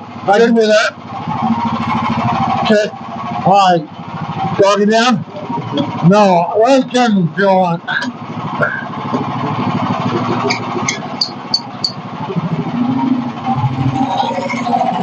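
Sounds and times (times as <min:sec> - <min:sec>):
small gasoline engine running: 0:00.0 - 0:15.0
high-pitched squeaks: 0:08.6 - 0:15.0.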